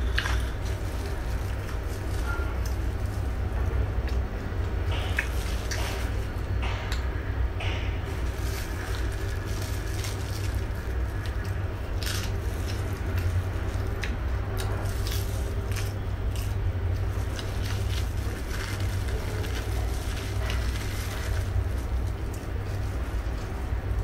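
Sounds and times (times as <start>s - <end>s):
steady low hum: 0.0s - 24.0s
person chewing and lip-smacking: 5.1s - 5.9s.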